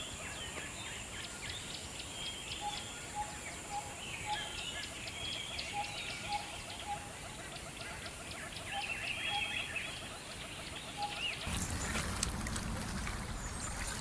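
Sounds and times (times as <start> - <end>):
birds chirping and calling: 0.0 - 14.0
running water: 11.5 - 14.0.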